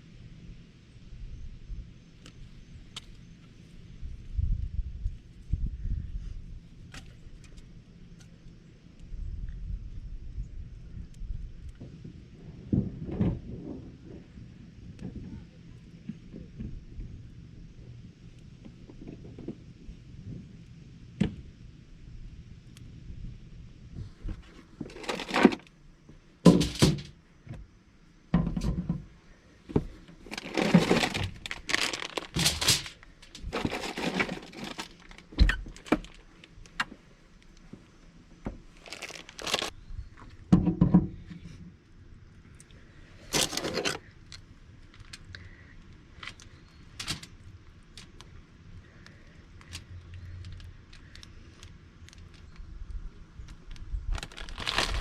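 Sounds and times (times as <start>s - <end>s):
rustling and crackling: 24.0s - 27.2s, 28.6s - 40.4s, 42.6s - 55.0s.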